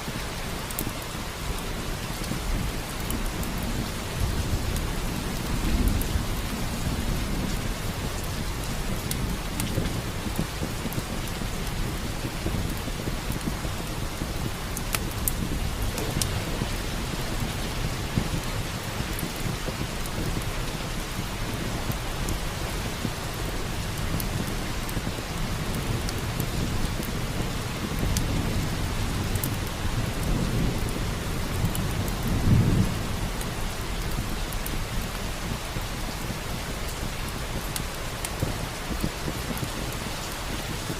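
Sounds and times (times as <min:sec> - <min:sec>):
steady rain: 0:00.0 - 0:40.9
wood fire crackling: 0:00.0 - 0:40.9
thunder rolls: 0:14.4 - 0:20.4.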